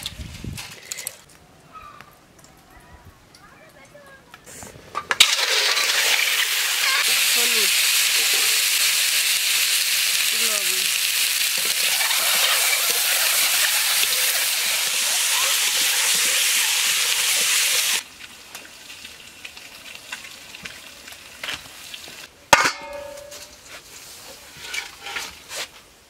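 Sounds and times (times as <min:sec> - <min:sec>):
food sizzling in a wok: 0:05.2 - 0:22.3
metallic clang of cookware: 0:22.5 - 0:23.5.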